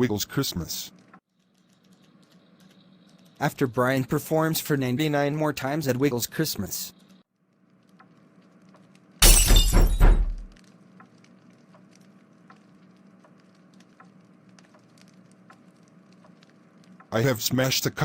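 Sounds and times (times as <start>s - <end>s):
faint steady hum: 0.0s - 18.0s
crash and shatter: 9.2s - 10.6s
light ticks: 10.6s - 17.7s.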